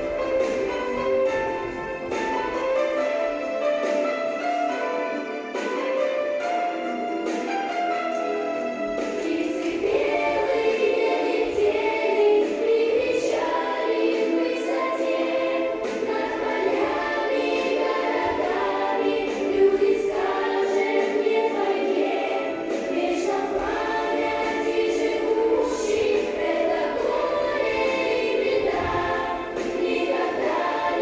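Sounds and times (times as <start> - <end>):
choir singing: 8.6 - 31.0.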